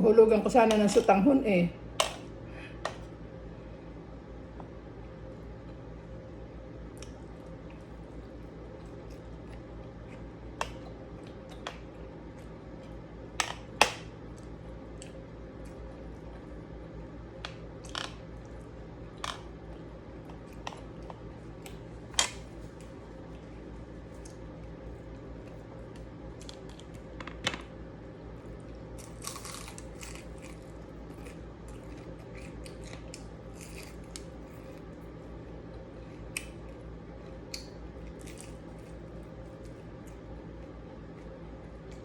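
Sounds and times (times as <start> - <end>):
crisp food being bitten: 29.0 - 35.0, 36.0 - 39.0.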